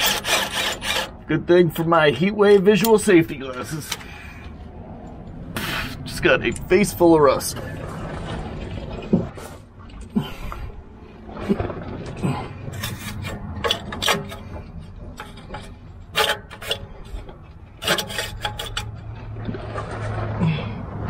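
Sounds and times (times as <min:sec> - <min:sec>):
hand tools scraping metal: 0:00.0 - 0:04.2, 0:12.6 - 0:19.9.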